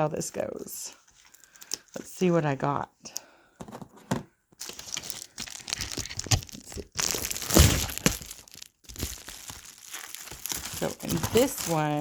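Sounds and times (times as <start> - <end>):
package being cut and torn: 4.6 - 12.0
packaging rustling and crinkling: 4.6 - 12.0.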